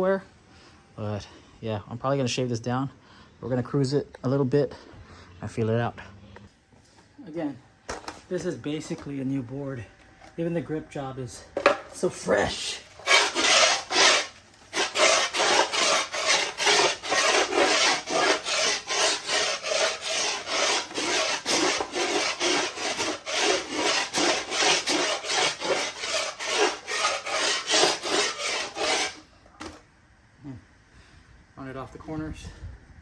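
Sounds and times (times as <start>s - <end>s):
rasping strokes on skateboard edge: 12.3s - 29.3s.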